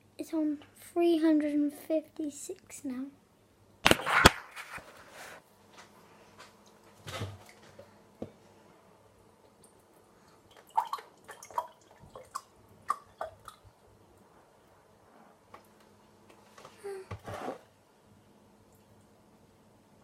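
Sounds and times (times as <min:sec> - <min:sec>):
small clicks and drip-like plinks: 0:09.4 - 0:13.6.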